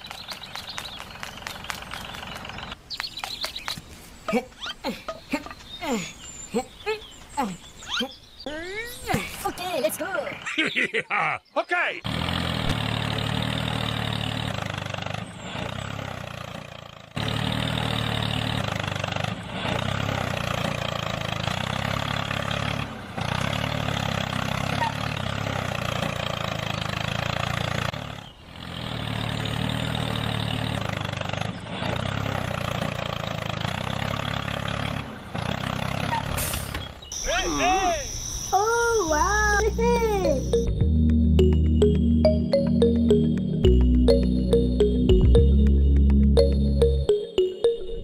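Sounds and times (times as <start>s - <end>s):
tractor engine running: 0.0s - 3.7s, 12.1s - 37.0s, 39.0s - 48.0s.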